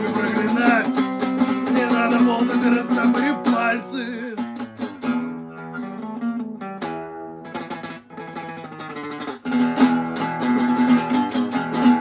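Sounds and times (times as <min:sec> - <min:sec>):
acoustic guitar playing: 0:00.0 - 0:12.0.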